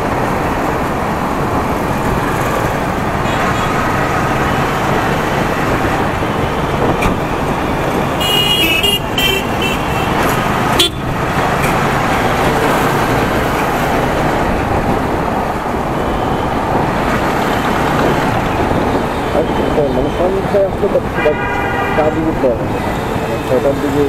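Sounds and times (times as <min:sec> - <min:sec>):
motorcycle riding in traffic: 0:00.0 - 0:24.0
horn toots: 0:08.2 - 0:11.1, 0:21.2 - 0:22.3.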